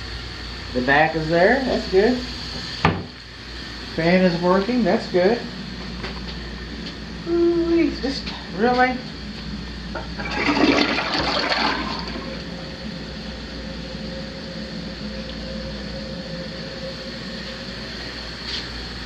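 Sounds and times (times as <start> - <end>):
toilet flushing: 9.3 - 15.1.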